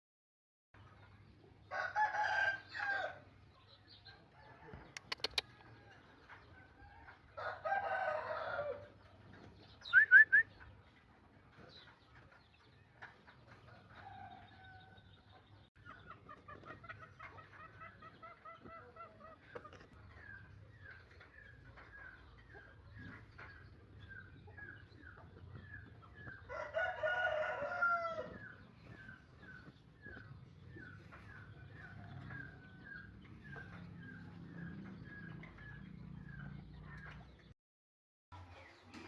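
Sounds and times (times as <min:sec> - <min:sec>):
soft clucking calls: 0:04.7 - 0:07.2, 0:15.8 - 0:26.4
sharp clicks: 0:04.9 - 0:05.6
rooster crowing: 0:07.4 - 0:08.8, 0:26.5 - 0:28.4.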